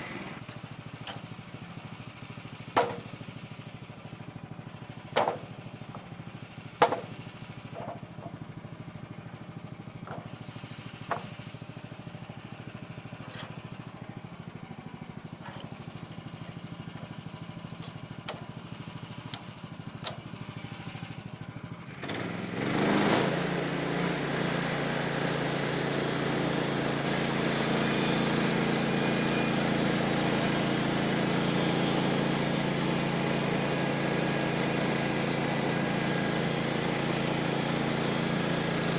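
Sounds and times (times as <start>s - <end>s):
loud engine running: 0.0s - 0.6s, 18.6s - 38.9s
engine running quietly: 0.0s - 38.9s.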